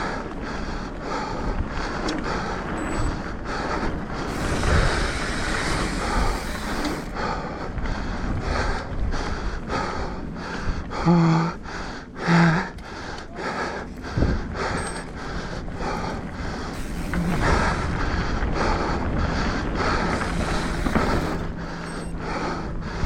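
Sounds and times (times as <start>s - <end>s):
tyre and wind noise: 0.0s - 12.9s, 13.5s - 23.0s
bike rattling: 0.0s - 23.0s
rider grunting: 2.0s - 7.2s, 11.0s - 22.7s.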